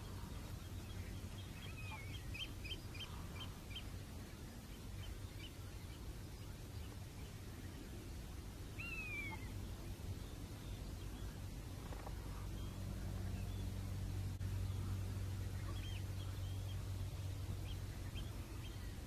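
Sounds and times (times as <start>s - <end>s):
low background rumble: 0.0s - 19.0s
small birds chirping: 0.0s - 19.0s.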